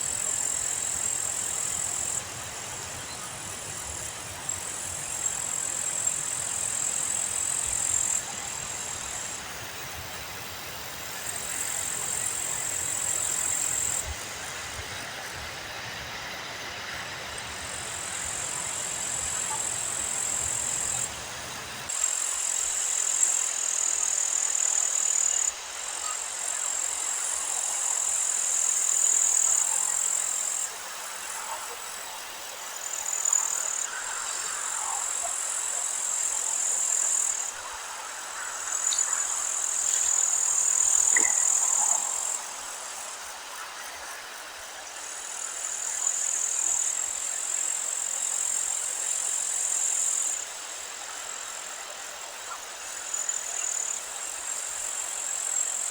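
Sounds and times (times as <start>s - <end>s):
light hiss: 0.0s - 55.9s
faint bird chirps: 40.8s - 41.9s.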